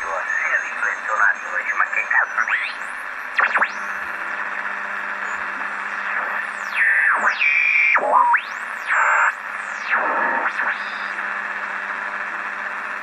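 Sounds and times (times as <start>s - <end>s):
radio band hiss: 0.0s - 13.0s
radio heterodyne whistles: 5.2s - 11.1s.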